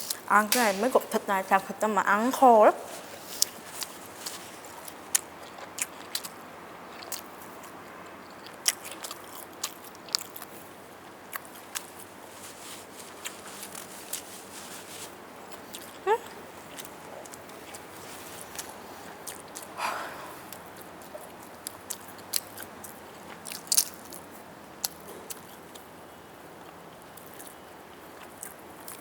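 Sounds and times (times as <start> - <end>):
chewing and biting: 3.3 - 12.1, 15.5 - 19.7, 20.5 - 25.9.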